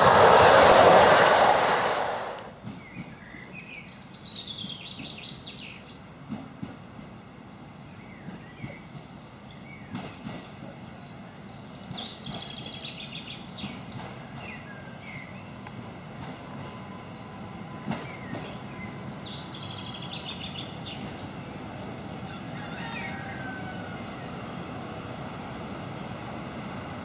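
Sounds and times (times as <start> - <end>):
electric train rumbling: 0.0 - 27.0.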